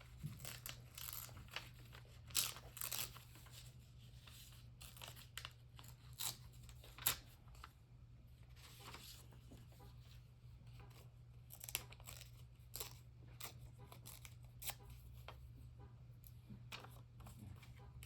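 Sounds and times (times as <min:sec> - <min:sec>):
paper rustling and crinkling: 0:00.0 - 0:07.8, 0:08.5 - 0:10.0, 0:16.7 - 0:17.8.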